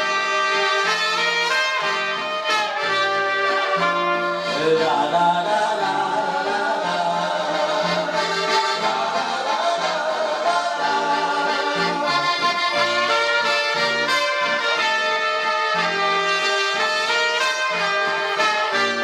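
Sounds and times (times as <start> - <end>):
pop-folk band instrumental: 0.0 - 19.0.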